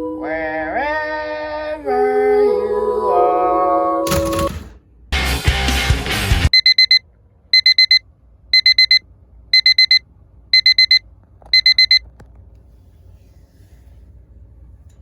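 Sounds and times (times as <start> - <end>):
digital alarm beeping: 6.5 - 7.0, 7.6 - 8.0, 8.6 - 9.0, 9.6 - 10.0, 10.6 - 11.0, 11.6 - 12.0.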